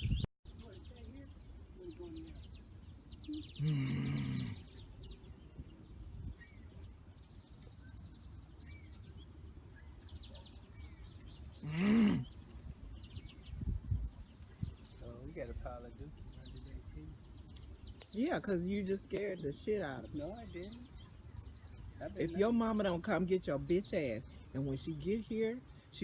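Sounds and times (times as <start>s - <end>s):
songbirds chirping: 0.0s - 26.0s
loud harsh bird cries: 2.1s - 5.3s, 7.9s - 13.5s.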